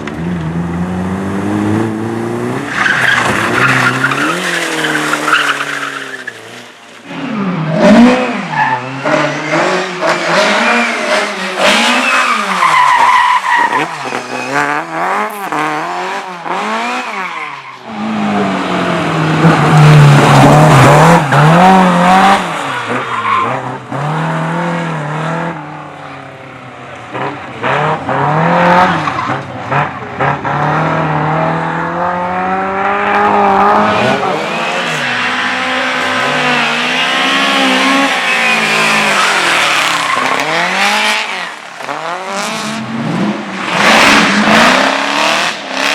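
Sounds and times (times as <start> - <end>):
car engine revving hard: 0.4 - 17.3, 27.1 - 45.9
tyres squealing: 11.5 - 15.9.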